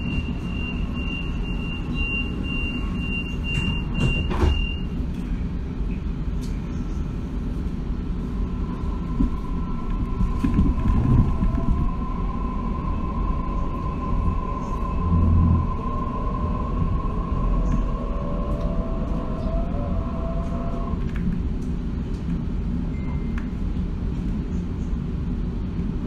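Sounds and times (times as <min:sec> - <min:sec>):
train door warning beeps: 0:00.0 - 0:05.0, 0:22.9 - 0:23.4
train carriage rumbling: 0:00.0 - 0:26.0.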